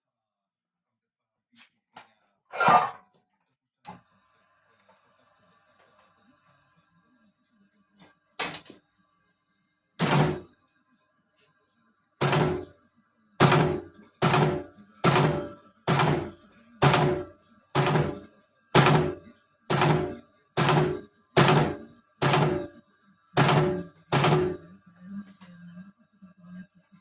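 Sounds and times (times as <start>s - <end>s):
punching machine heavy thunks: 10.0s - 10.5s, 12.2s - 12.7s, 13.4s - 18.2s, 18.8s - 22.7s, 23.4s - 24.6s.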